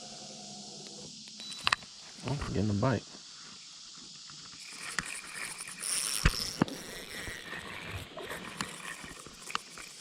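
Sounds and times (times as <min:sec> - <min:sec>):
rustling hiss: 0:00.0 - 0:10.0
fishing reel clicks and knocks: 0:04.6 - 0:10.0.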